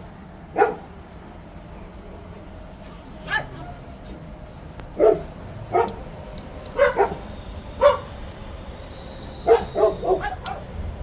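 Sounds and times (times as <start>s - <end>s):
dog barking: 0.6s - 0.9s, 3.2s - 3.8s, 5.0s - 6.0s, 6.8s - 8.1s, 9.4s - 10.7s.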